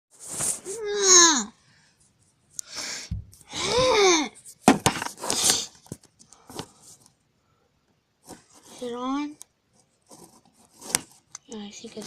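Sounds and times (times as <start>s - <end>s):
rustling of handled object: 0.1s - 0.8s, 4.4s - 7.2s, 8.2s - 9.1s, 9.7s - 12.0s
child's high wordless vocal: 0.7s - 1.6s, 3.5s - 4.4s.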